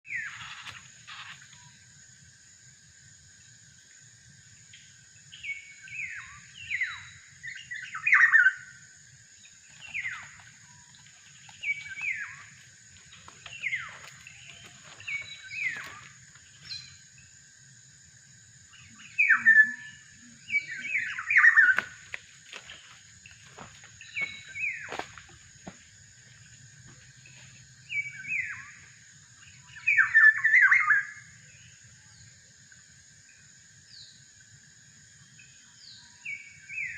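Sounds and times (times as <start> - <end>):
bird whistled calls: 19.1 - 21.9.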